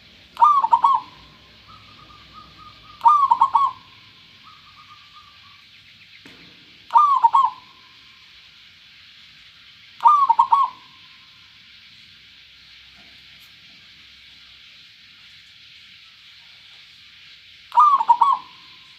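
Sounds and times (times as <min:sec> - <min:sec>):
dove cooing: 0:00.0 - 0:05.6, 0:06.9 - 0:08.0, 0:10.0 - 0:11.1, 0:17.7 - 0:18.9.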